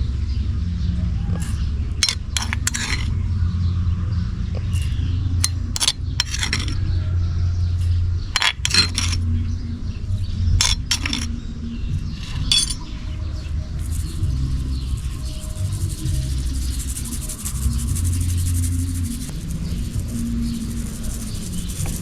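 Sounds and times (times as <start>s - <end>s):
steady low hum: 0.0s - 22.0s
hard objects clinking and scraping: 2.0s - 3.2s, 4.8s - 6.9s, 7.8s - 9.3s, 10.6s - 11.4s, 12.1s - 12.9s, 13.8s - 22.0s.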